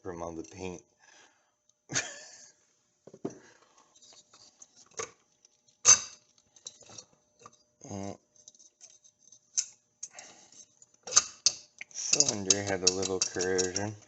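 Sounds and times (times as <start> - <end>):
metallic clinks of tools and parts: 8.4 - 14.0.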